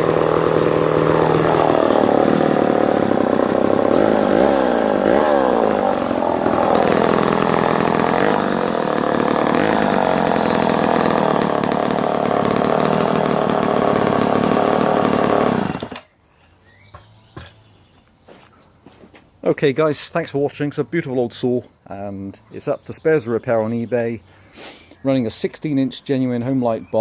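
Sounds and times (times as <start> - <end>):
chainsaw revving: 0.0 - 16.1.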